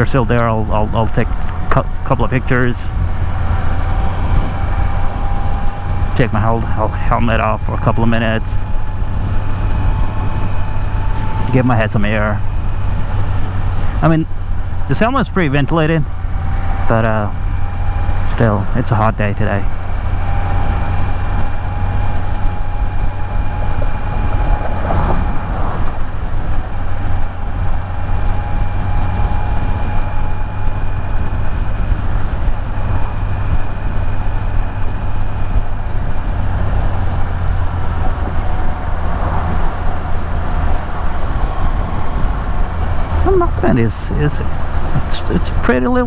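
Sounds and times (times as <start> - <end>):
faint steady whine: 0.0 - 46.0
motorcycle engine rumbling: 0.0 - 46.0
wind noise: 0.0 - 46.0.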